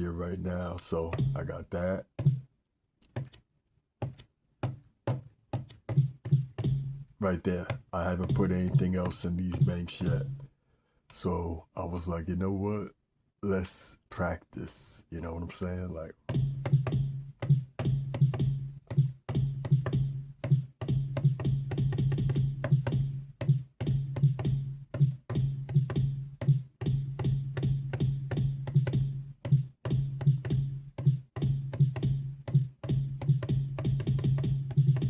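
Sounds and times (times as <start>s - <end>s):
drum sample hits: 0.9s - 2.5s, 5.9s - 10.5s, 16.3s - 35.0s.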